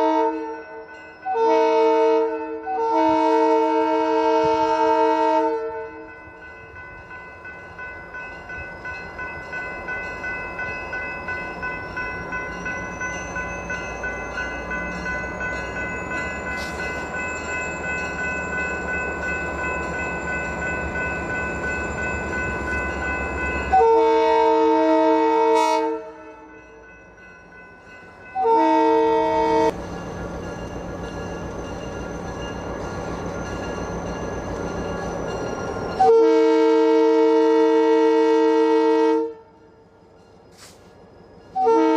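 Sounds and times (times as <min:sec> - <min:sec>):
locomotive horn blasts: 0:00.0 - 0:00.6, 0:01.3 - 0:06.0, 0:23.7 - 0:26.5, 0:28.4 - 0:29.8, 0:36.0 - 0:39.6, 0:41.6 - 0:41.9
approaching train: 0:00.0 - 0:41.9.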